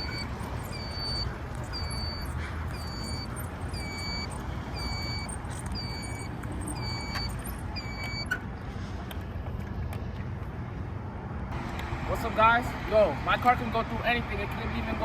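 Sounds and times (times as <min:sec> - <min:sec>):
car warning beeper: 0:00.0 - 0:08.4
low rumble of car: 0:00.0 - 0:15.0.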